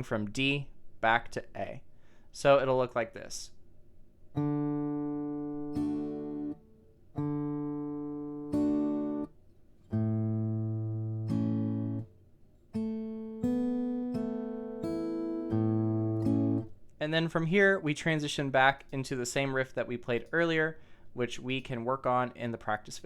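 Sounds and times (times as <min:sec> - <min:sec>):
acoustic guitar strumming: 0:04.3 - 0:16.8.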